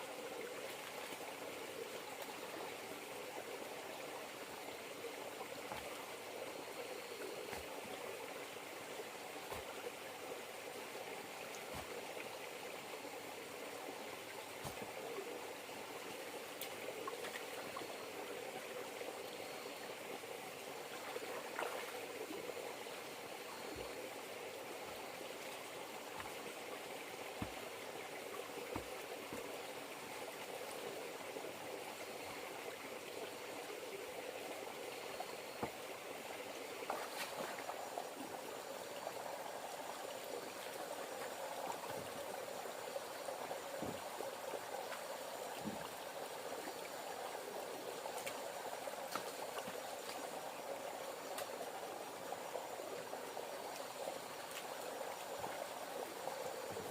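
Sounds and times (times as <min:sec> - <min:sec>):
flowing river water: 0:00.0 - 0:56.9.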